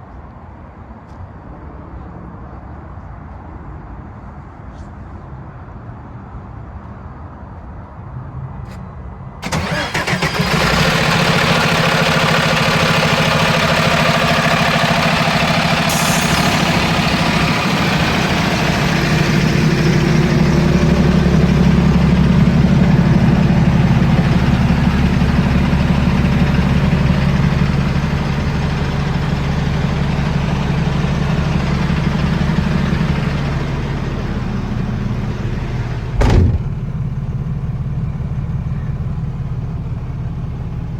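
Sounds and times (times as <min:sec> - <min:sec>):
diesel truck engine idling: 0:09.4 - 0:40.9.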